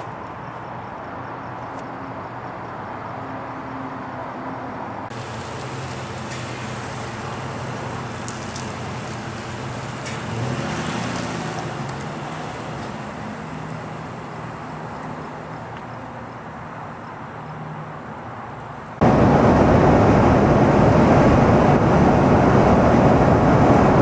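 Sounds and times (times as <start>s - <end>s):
road noise: 0.0s - 24.0s
vehicle engine revving: 5.1s - 15.7s.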